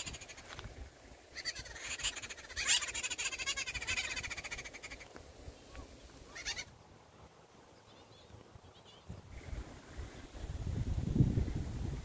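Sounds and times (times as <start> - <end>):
buzzy bird chattering: 0.0 - 0.5, 1.4 - 5.1, 6.3 - 6.7.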